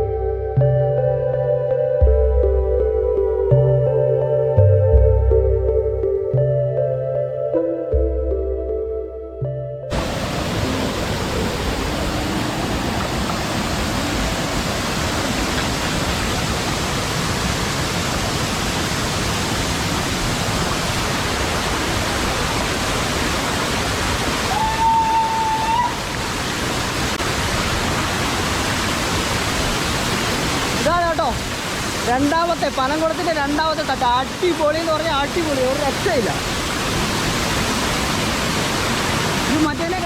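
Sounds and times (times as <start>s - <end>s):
waterfall rushing: 9.9s - 40.0s.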